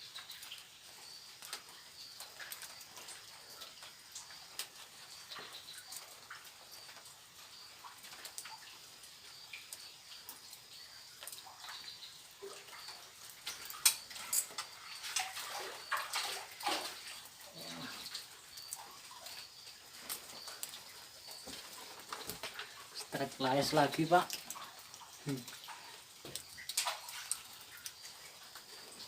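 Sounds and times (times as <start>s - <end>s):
water splashing: 11.2s - 29.0s.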